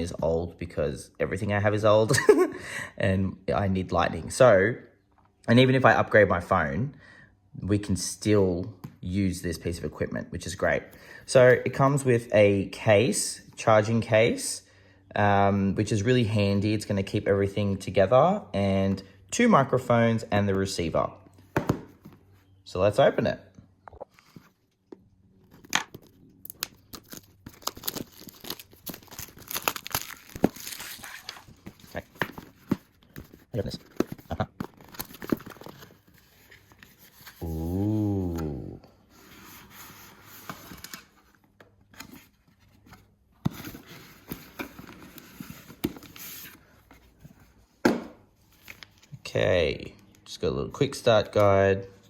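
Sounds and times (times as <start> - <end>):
cardboard packaging rustling: 25.3 - 38.6
plastic shrink-wrap tearing: 26.4 - 31.4.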